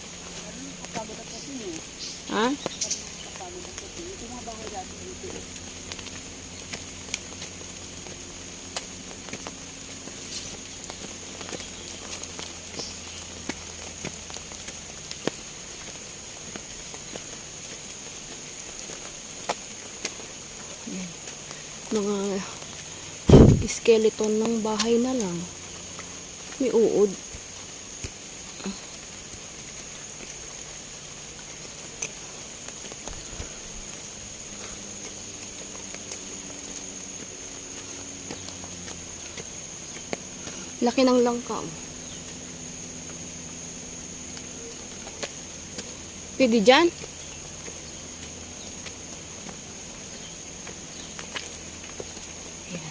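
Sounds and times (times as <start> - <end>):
footsteps on dry leaves: 0.0 - 52.9
high-pitched insect drone: 0.0 - 52.9
light clicks and crackles: 2.5 - 23.0, 23.6 - 30.7, 31.3 - 42.4.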